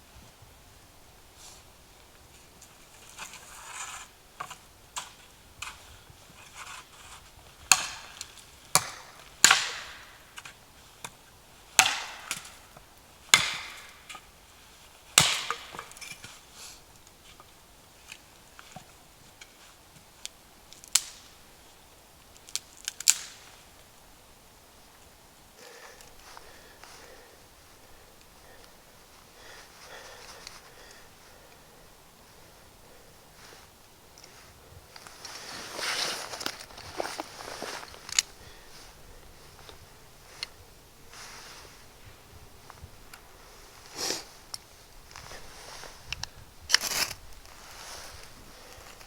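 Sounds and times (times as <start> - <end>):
wood being chopped: 7.7 - 10.5, 11.8 - 12.7, 13.3 - 14.3, 15.2 - 16.2.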